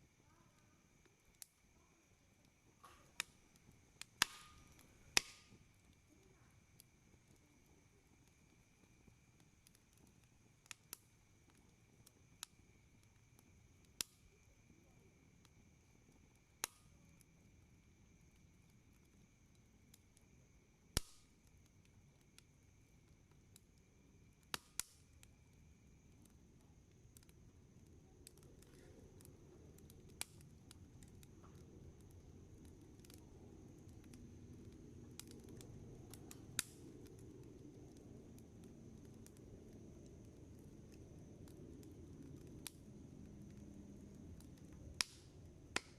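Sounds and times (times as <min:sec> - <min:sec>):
campfire crackling and popping: 0:00.0 - 0:45.9
soft burning rumble: 0:00.0 - 0:45.9.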